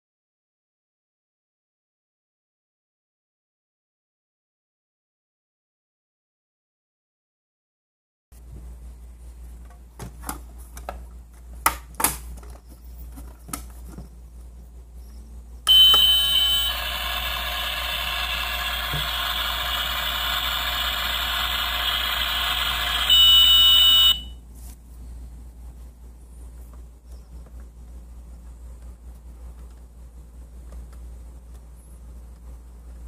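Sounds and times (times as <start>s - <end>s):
electronic beep tone: 15.7s - 24.3s
electronic hiss from speaker: 15.7s - 24.3s.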